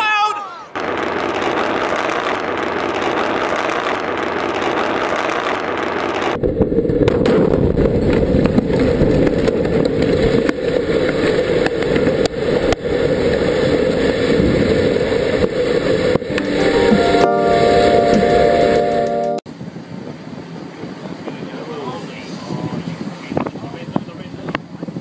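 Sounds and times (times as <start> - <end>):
rocket explosion roar and rumble: 0.8 - 16.4
crackles and pops: 0.8 - 16.5.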